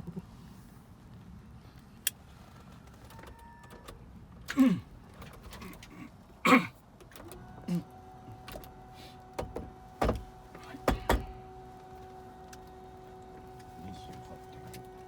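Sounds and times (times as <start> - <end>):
two-tone electrical hum: 7.0 - 15.0.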